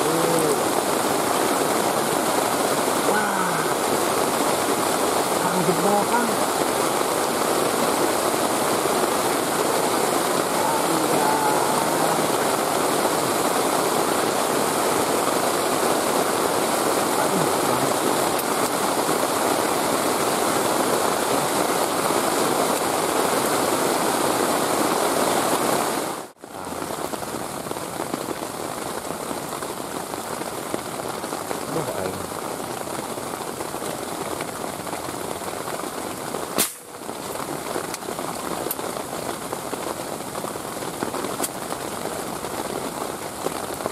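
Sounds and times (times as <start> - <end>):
heavy rain hissing: 0.0 - 43.9
sharp click: 36.6 - 36.9.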